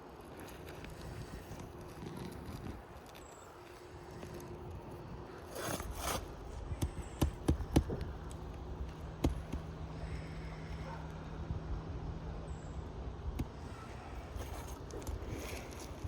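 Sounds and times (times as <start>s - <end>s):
pry bar scraping shingles: 5.3s - 9.7s.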